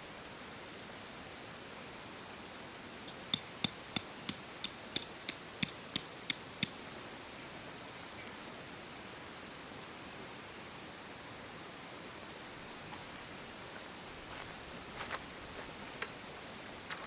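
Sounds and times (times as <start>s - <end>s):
sharp metallic taps: 3.3s - 6.8s.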